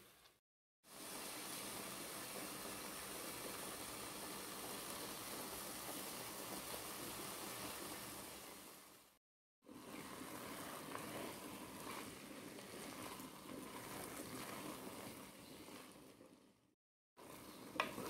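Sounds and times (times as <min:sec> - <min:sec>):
food sizzling in a pot: 0:00.0 - 0:18.0
wooden spatula stirring: 0:09.7 - 0:18.0.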